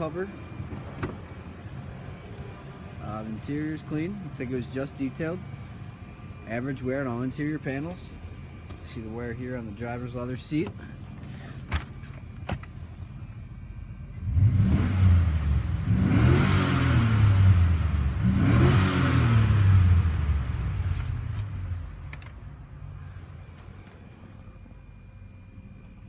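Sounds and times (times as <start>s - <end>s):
car engine revving: 14.1s - 22.0s.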